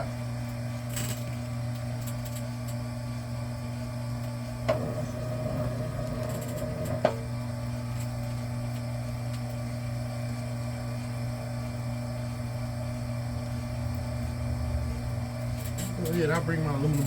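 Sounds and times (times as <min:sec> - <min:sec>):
machine motor humming: 0:04.6 - 0:07.8, 0:12.4 - 0:17.0.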